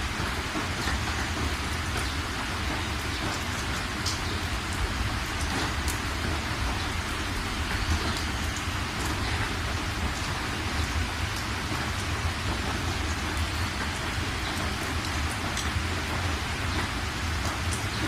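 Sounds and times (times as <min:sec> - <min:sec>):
raindrops ticking: 0:00.0 - 0:18.0
steady rain falling: 0:00.0 - 0:18.0.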